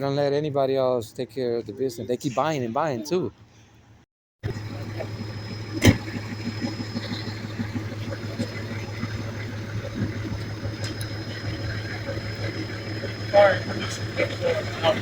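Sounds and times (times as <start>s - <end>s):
engine idling with high whine: 3.8s - 15.0s.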